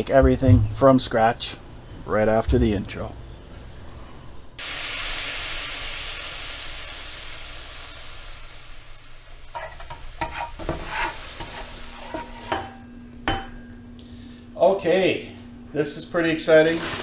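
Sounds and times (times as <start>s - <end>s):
food sizzling in hot oil: 4.6s - 12.5s.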